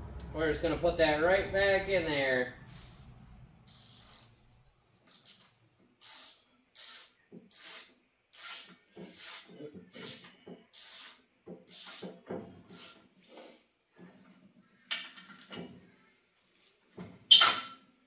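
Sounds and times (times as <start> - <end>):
wrench rasping: 3.7 - 4.4, 5.1 - 13.0.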